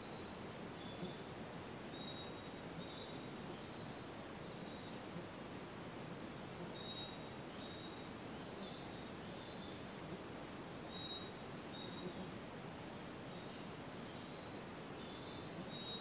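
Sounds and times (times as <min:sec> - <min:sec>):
steady background hiss: 0:00.0 - 0:16.0
songbirds singing: 0:06.3 - 0:12.2, 0:13.3 - 0:16.0.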